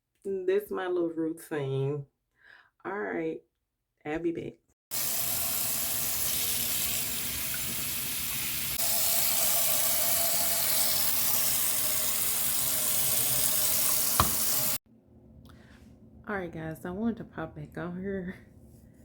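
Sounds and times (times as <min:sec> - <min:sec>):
water running: 0:04.9 - 0:14.8.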